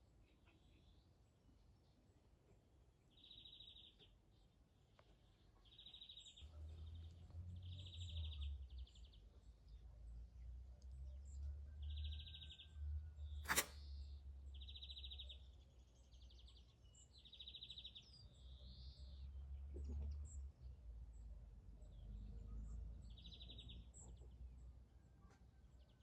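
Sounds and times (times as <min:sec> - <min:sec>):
sharp click: 0:13.4 - 0:13.8.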